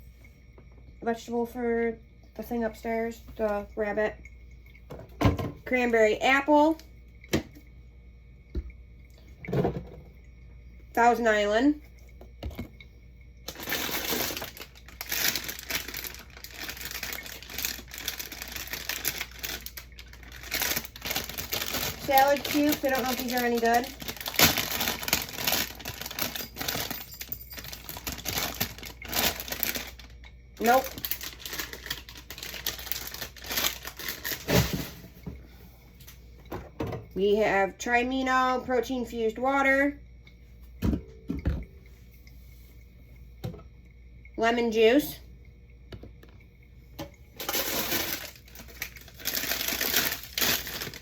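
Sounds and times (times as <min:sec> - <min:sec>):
plastic packaging crinkling: 0:13.5 - 0:35.0, 0:47.4 - 0:51.0.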